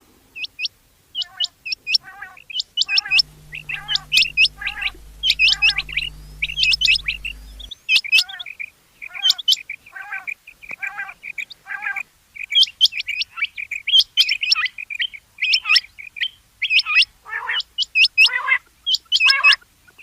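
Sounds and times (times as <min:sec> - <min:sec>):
steady low hum: 0:03.1 - 0:07.7.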